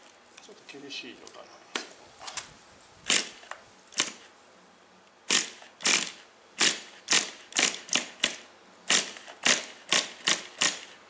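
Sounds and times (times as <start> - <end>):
recoil pull-starter rasping: 3.1 - 4.3, 5.3 - 11.0.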